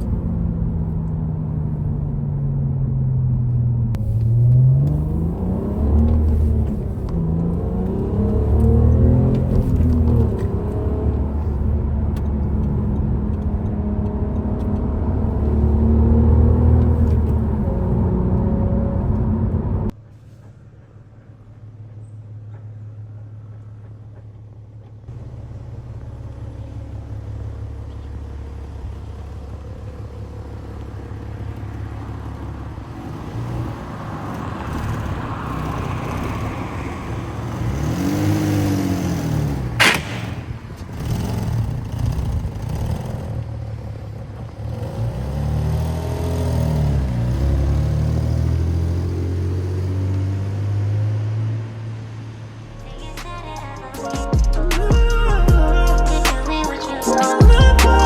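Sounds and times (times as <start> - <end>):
car engine through sports exhaust: 0.0 - 54.0
sharp exhaust crack: 37.0 - 42.8.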